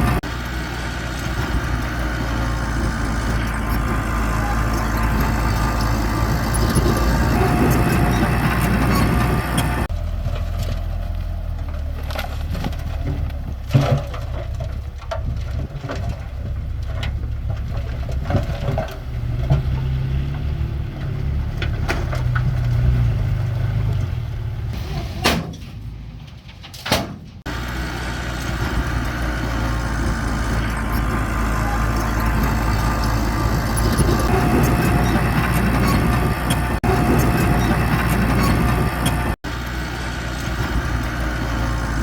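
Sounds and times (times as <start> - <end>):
bulldozer diesel engine rumble: 0.0 - 42.0
machine knocks and clanks: 30.5 - 39.4.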